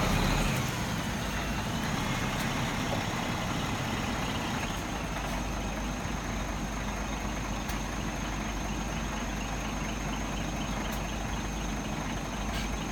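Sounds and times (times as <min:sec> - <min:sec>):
diesel truck engine idling: 0:00.0 - 0:12.9.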